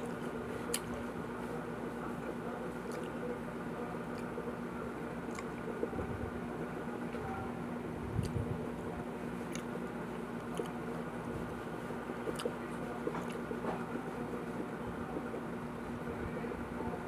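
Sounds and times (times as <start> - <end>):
person chewing crispy food: 0.0 - 1.1, 2.8 - 3.2, 5.2 - 5.6, 9.4 - 10.9, 12.2 - 13.6
low steady hum: 0.0 - 17.0.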